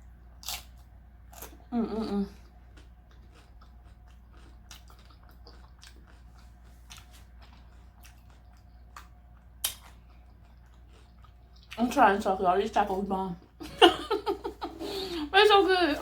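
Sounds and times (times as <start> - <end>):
chewing with wet mouth sounds: 0.4 - 12.2.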